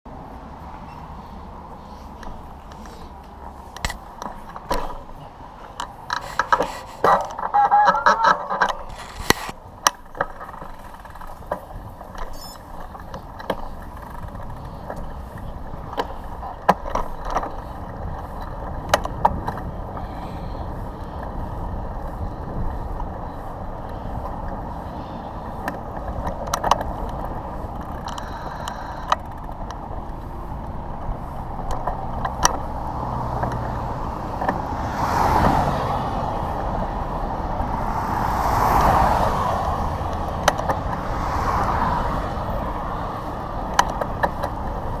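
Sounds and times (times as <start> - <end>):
road traffic: 0.0 - 45.0
vehicles passing: 0.1 - 45.0
wind rumbling on microphone: 8.3 - 45.0.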